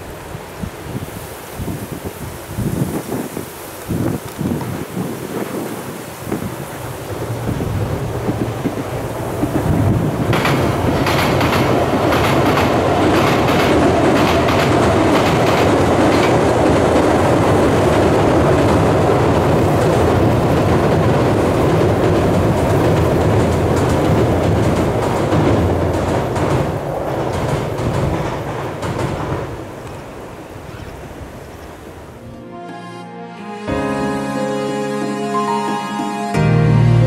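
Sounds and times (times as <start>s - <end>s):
train rumbling over steel bridge: 0.0s - 32.4s
wheels clickety-clack over rail joints: 3.2s - 32.2s.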